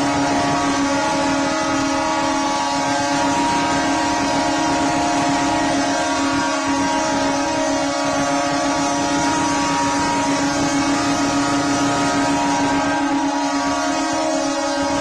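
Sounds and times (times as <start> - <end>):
train horns sounding chord: 0.0 - 15.0.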